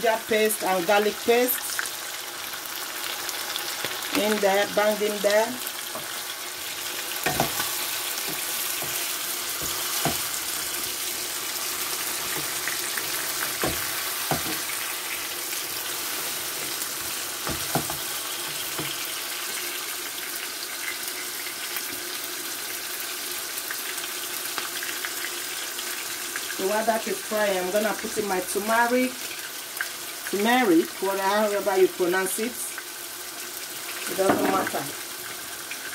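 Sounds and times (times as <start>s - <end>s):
food sizzling in hot oil: 0.0s - 35.9s
spatula knocking against pan: 13.6s - 14.6s.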